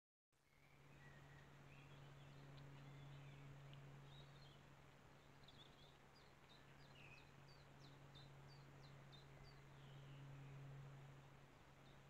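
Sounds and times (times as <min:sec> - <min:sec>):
faint high bird chirps: 0:00.4 - 0:04.6
steady low hum: 0:00.5 - 0:12.0.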